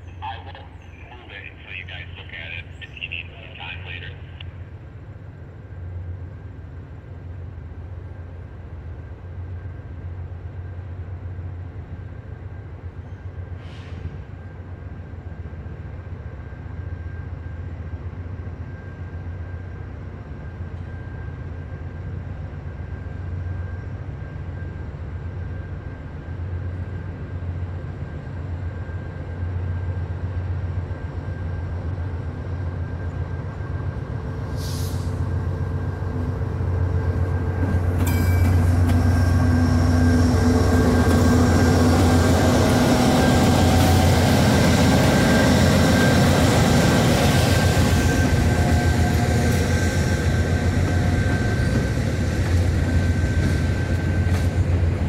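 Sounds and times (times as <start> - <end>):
diesel locomotive engine drone: 0.0 - 55.0
wheel and rail noise: 35.0 - 55.0.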